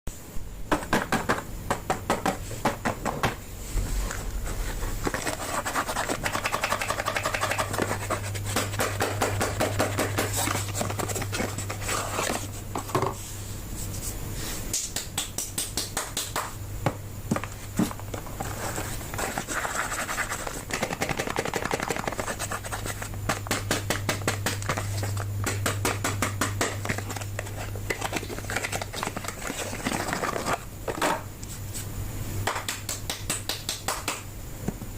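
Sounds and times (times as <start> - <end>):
packaging crinkling and scratching: 4.5 - 12.7, 17.6 - 23.2, 26.7 - 30.7.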